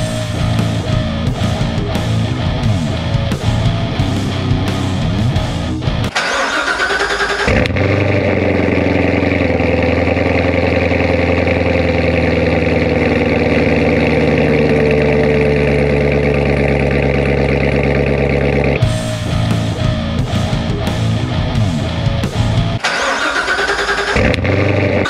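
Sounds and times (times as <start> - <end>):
car engine cranking: 3.7 - 25.0
car engine fast idle: 6.1 - 18.8, 22.8 - 25.0.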